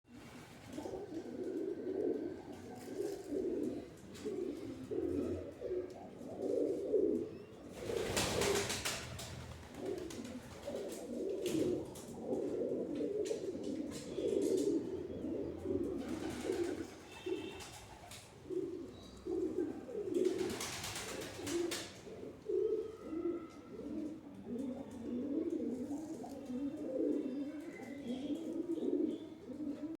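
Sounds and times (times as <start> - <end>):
pigeons cooing: 0.1 - 30.0.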